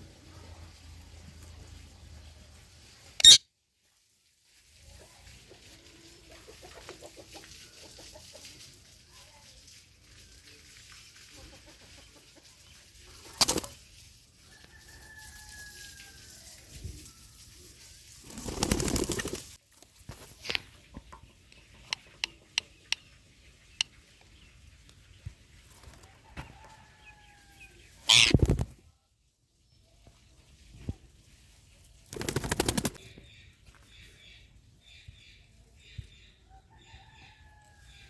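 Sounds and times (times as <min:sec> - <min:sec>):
parrot squawks: 0:03.2 - 0:03.4, 0:28.1 - 0:28.4
wings flapping: 0:13.2 - 0:13.8, 0:18.2 - 0:19.6, 0:28.1 - 0:28.8, 0:32.0 - 0:33.1.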